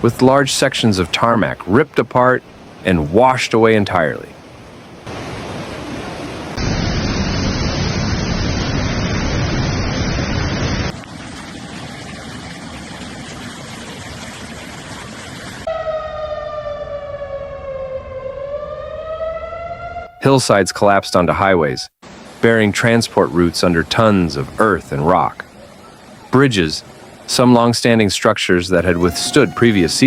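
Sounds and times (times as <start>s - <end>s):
floodwater rushing: 0.0s - 7.6s, 10.6s - 15.7s, 22.1s - 30.0s
wailing siren: 15.6s - 21.9s, 28.8s - 30.0s.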